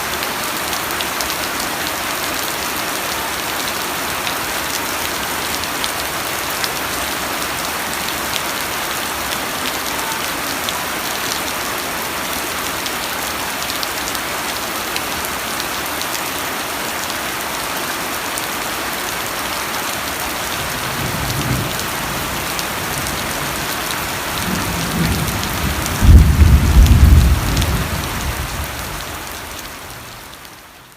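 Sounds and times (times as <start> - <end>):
heavy rain: 0.0 - 30.9
thunder rumble: 24.4 - 28.9.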